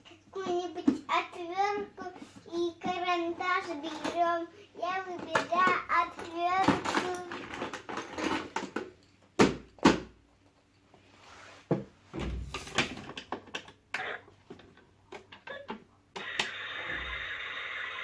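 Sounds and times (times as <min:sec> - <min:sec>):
plastic toy clacking and knocking: 0:03.8 - 0:04.4, 0:05.1 - 0:10.1, 0:12.8 - 0:13.8.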